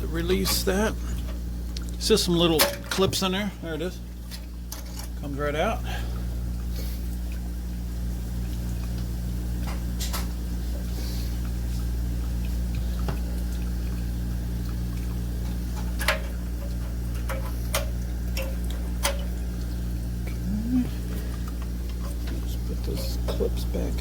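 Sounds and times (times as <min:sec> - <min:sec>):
water tank draining: 0:00.0 - 0:24.0.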